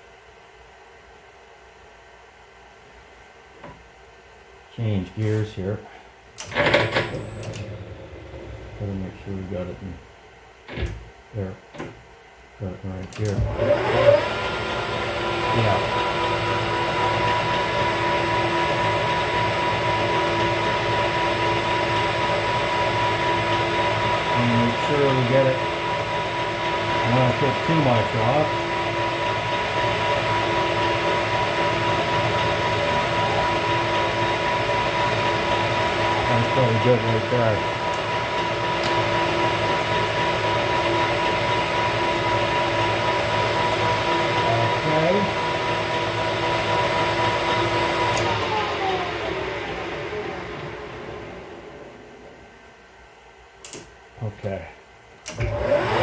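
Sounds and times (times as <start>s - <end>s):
metal lathe running: 6.4s - 8.8s, 13.3s - 50.7s, 55.3s - 56.0s
steady high tone: 31.4s - 37.8s.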